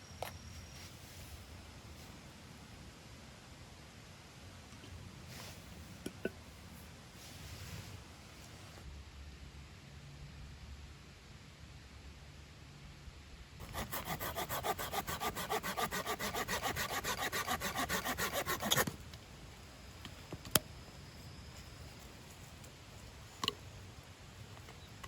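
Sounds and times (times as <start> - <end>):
hand saw cutting wood: 13.6 - 18.9.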